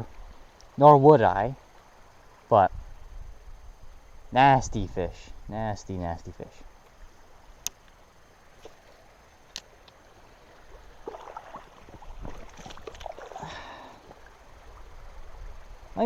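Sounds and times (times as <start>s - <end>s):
water sloshing and gurgling: 0.0s - 16.0s
water splashing: 8.4s - 16.0s.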